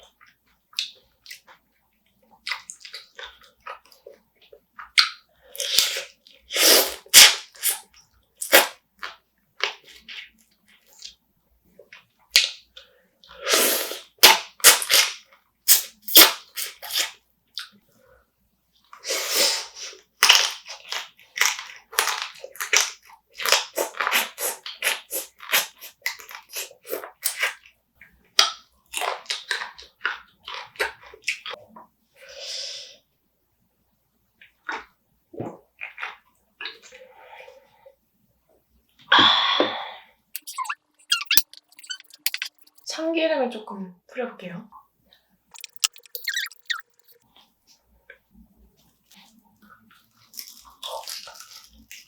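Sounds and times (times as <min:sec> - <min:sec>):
crab shell crunching: 0:40.4 - 0:42.8, 0:50.3 - 0:52.0
wet chewing and lip smacks: 0:40.4 - 0:42.9, 0:45.6 - 0:47.2.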